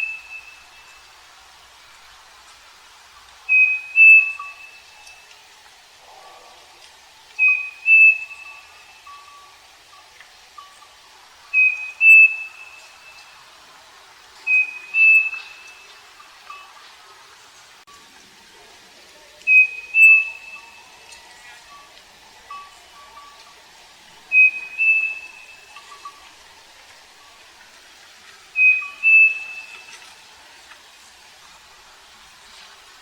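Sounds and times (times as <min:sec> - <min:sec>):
bird whistling two-note song: 0:00.0 - 0:00.7, 0:03.5 - 0:04.9, 0:07.4 - 0:09.4, 0:11.5 - 0:13.2, 0:14.5 - 0:15.8, 0:19.5 - 0:20.8, 0:24.3 - 0:26.2, 0:28.6 - 0:29.9.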